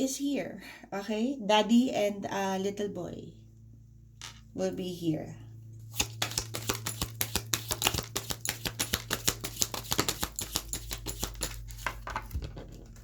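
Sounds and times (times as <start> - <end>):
cards being shuffled: 5.9 - 13.0.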